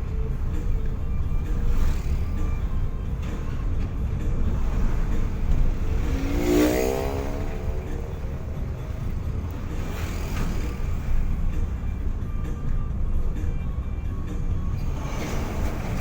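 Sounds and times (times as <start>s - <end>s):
traffic rumble: 0.0s - 16.0s
vehicle passing close by: 4.4s - 12.2s.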